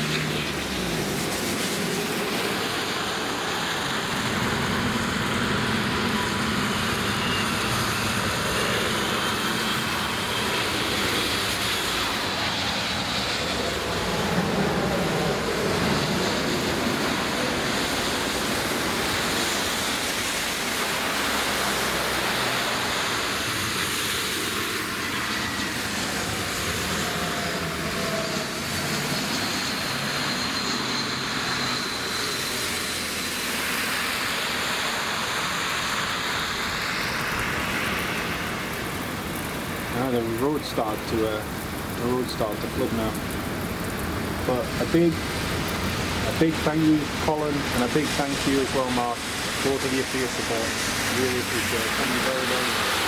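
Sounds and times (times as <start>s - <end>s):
faint high engine whine: 0.0s - 53.0s
jet engines roaring: 0.0s - 53.0s.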